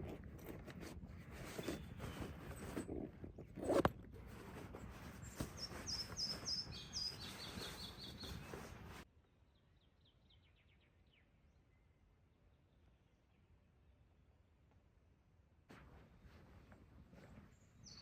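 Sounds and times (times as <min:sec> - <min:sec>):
rustling and handling noises: 0:00.0 - 0:09.1, 0:15.7 - 0:18.0
songbird singing: 0:04.8 - 0:13.5, 0:17.5 - 0:18.0
faint bird trills: 0:05.5 - 0:08.8.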